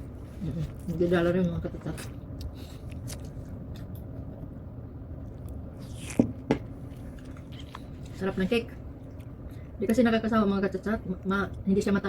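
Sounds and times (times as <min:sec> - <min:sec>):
person chewing cake: 0:00.1 - 0:04.4, 0:05.2 - 0:08.2.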